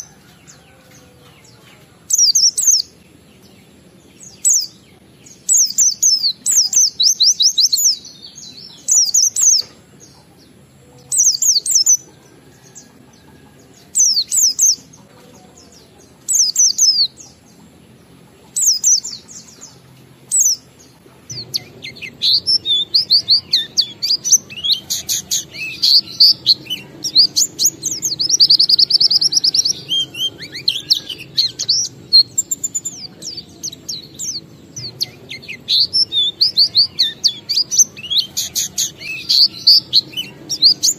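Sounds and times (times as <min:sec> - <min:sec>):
bird chirping and warbling: 0:00.0 - 0:40.9.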